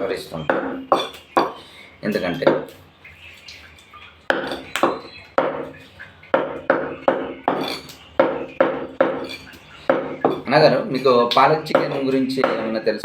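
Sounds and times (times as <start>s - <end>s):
cleaver chopping on a block: 6.4s - 10.4s, 11.6s - 12.7s.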